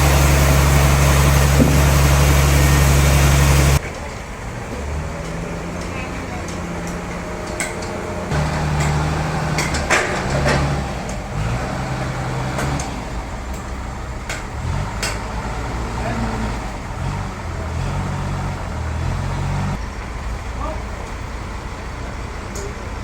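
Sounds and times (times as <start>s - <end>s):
low motor hum: 0.0s - 3.8s
knocks and clanks: 0.0s - 4.1s, 5.2s - 11.5s.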